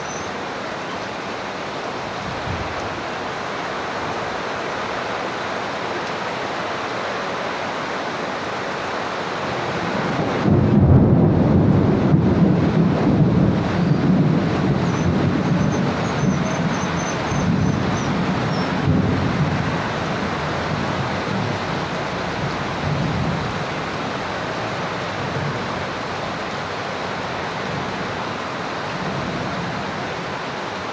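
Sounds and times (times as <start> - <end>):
steady rain: 0.0 - 30.9
rolling thunder rumble: 9.4 - 30.3.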